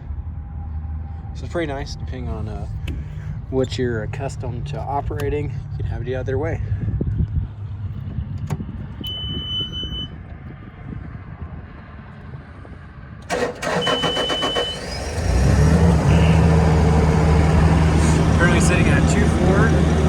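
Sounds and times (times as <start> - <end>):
warning beep: 9.1 - 10.2
diesel engine idling: 13.2 - 20.0.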